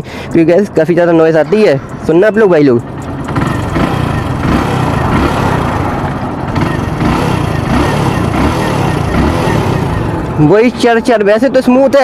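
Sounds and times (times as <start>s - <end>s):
motorcycle engine running: 1.8s - 11.3s.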